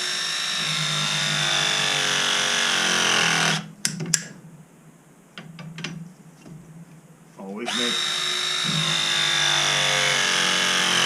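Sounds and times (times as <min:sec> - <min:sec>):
power tool motor running: 0:00.0 - 0:03.7, 0:07.7 - 0:11.0.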